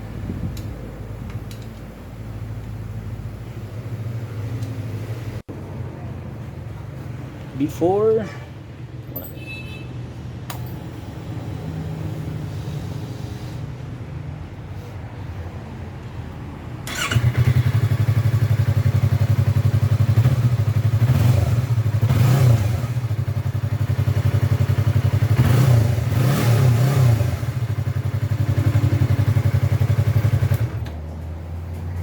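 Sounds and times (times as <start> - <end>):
motorcycle engine revving: 16.8 - 30.9.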